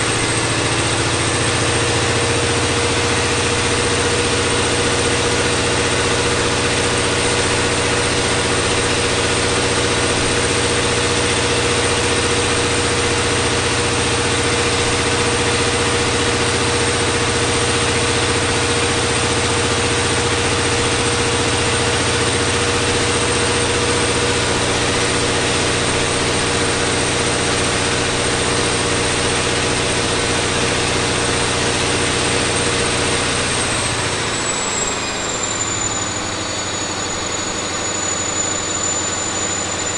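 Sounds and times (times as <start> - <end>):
diesel engine running: 0.0 - 39.9
turbocharger whistle: 0.0 - 39.9.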